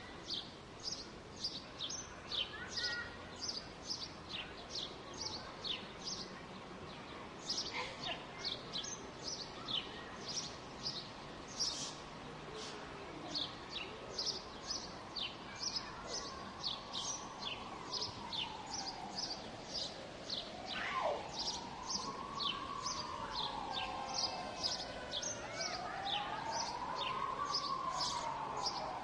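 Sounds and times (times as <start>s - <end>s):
city background hum: 0.0s - 29.0s
small birds chirping: 0.0s - 29.0s
faint wail rising and falling: 16.9s - 29.0s.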